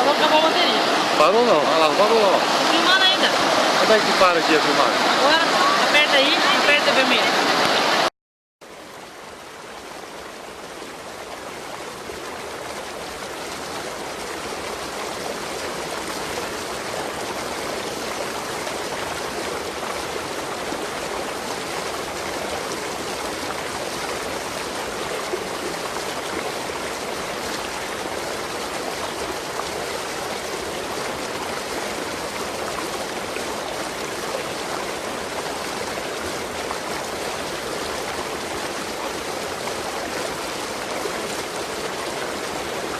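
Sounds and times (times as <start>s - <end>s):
waterfall rushing water: 0.0s - 8.1s, 8.7s - 42.9s.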